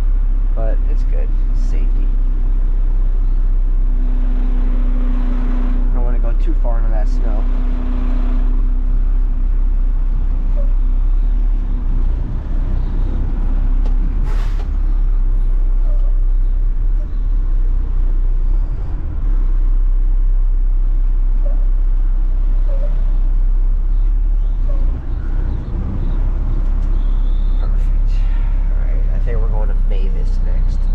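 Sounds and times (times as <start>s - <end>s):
diesel engine rumbling: 0.0s - 30.9s
air brakes hissing: 14.2s - 15.3s.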